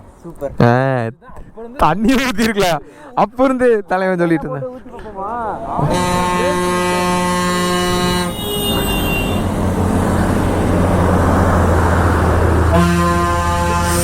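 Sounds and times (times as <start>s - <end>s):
road noise: 0.0s - 0.6s, 4.7s - 14.0s
engine rumble: 5.0s - 14.0s
vehicle horn: 5.6s - 10.7s, 12.6s - 14.0s.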